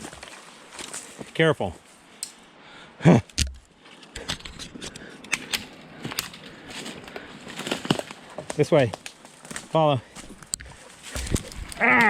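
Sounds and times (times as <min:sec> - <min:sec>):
twigs crackling and snapping: 0:03.3 - 0:12.0
footsteps in brush: 0:05.7 - 0:12.0.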